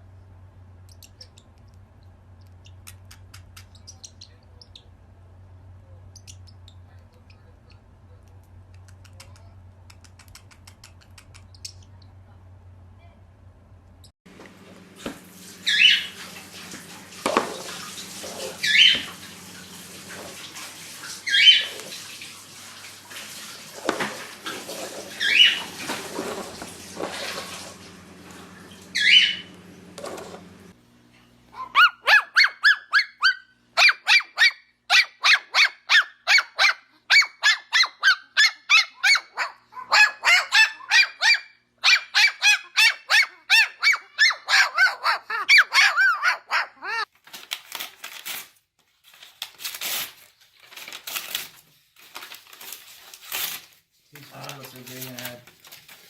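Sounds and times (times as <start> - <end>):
parrots squawking: 15.6 - 16.3, 17.2 - 19.4, 20.1 - 22.2, 23.8 - 27.7, 28.7 - 29.6, 31.6 - 47.1.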